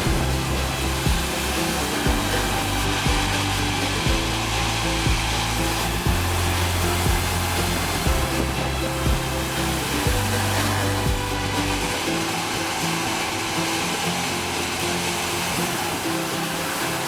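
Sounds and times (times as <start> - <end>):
background music with beat: 0.0 - 17.0
saw cutting log whirring: 0.0 - 17.0.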